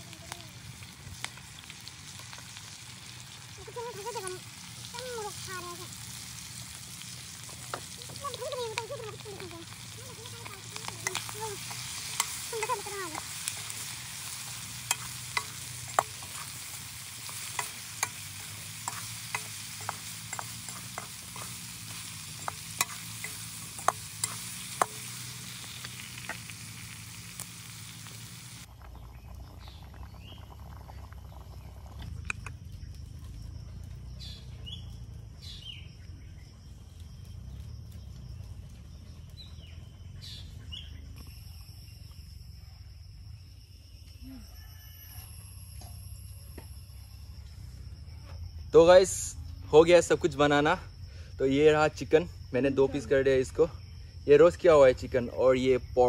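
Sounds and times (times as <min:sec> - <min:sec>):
curry sizzling in a pan: 0:00.0 - 0:31.7
outdoor ambience: 0:00.0 - 0:56.0
birds chirping: 0:00.1 - 0:33.0, 0:34.2 - 0:42.1.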